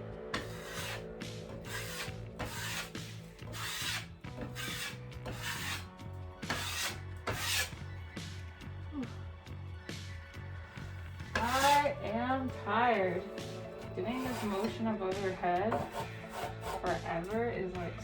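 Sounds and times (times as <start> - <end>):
trowel scraping on drywall: 0.4 - 7.8, 11.3 - 11.9, 13.4 - 14.8, 15.7 - 16.9.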